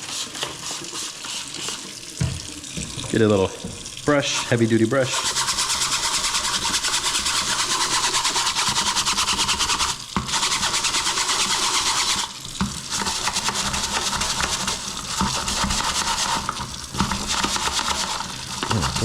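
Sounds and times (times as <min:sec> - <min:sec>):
brush scrubbing filter: 0:00.0 - 0:02.2, 0:04.2 - 0:19.0.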